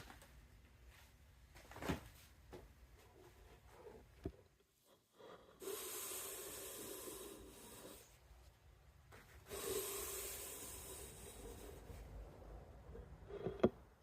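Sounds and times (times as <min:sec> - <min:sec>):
hissing rubbing on wood: 0:05.6 - 0:08.2, 0:09.4 - 0:12.0.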